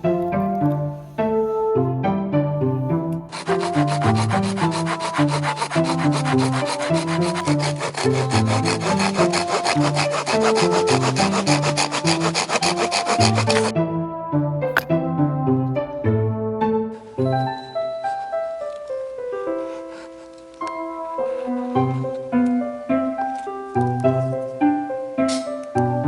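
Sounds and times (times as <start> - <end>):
strings and piano music: 0.0 - 26.0
hand saw scraping wood: 3.1 - 13.7, 19.5 - 22.3, 25.3 - 25.6.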